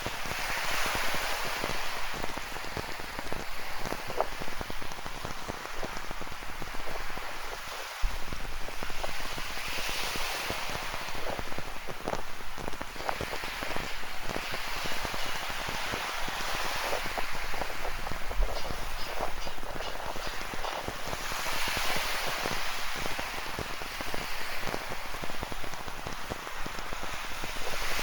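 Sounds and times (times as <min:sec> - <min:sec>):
ocean surf: 0:00.0 - 0:28.0
raindrops striking: 0:10.5 - 0:27.1.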